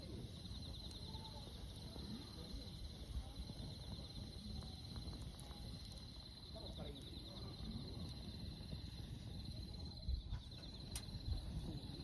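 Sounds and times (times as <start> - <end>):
campfire rumbling and crackling: 0.0 - 12.0.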